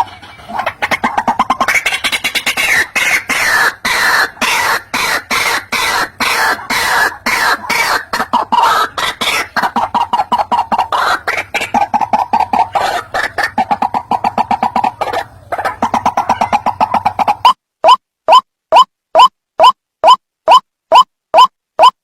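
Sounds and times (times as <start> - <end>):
waterhen harsh croaking calls: 0.0 - 19.7.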